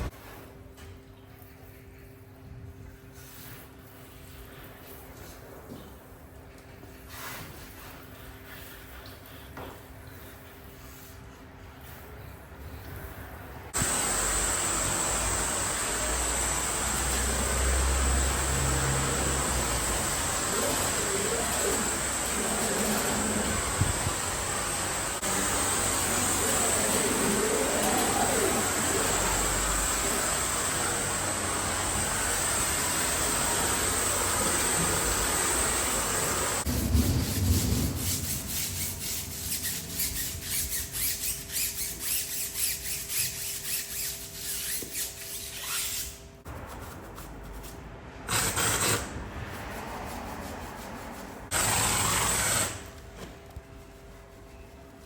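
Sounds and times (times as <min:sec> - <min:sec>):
rubbing strokes on car: 0:36.6 - 0:55.0.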